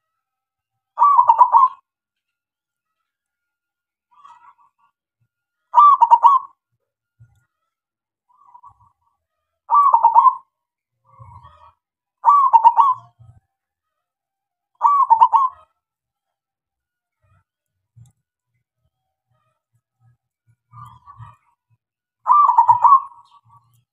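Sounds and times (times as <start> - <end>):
dove cooing: 1.0 - 1.8, 5.8 - 6.5, 9.7 - 10.5, 12.2 - 13.2, 14.8 - 15.6, 22.2 - 23.6.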